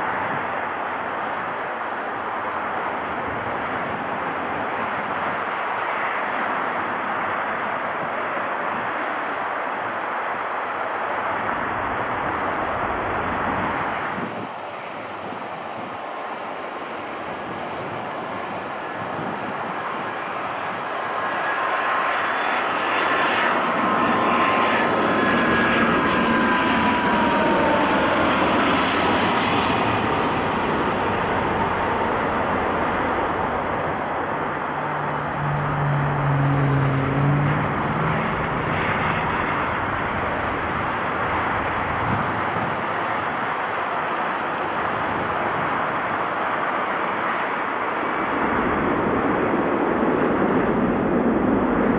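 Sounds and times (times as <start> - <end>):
jet airliner passing: 16.9 - 51.9.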